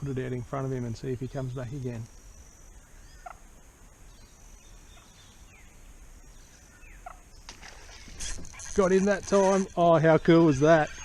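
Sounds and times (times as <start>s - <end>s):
faint bird calls: 1.1s - 11.0s.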